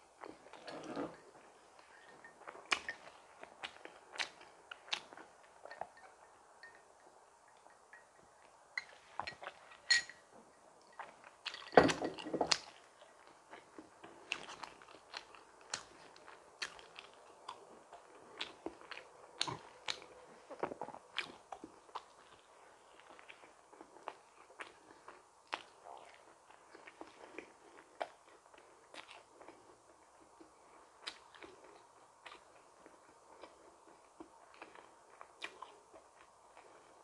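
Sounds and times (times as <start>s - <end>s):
chewing and biting donuts: 12.6s - 37.0s.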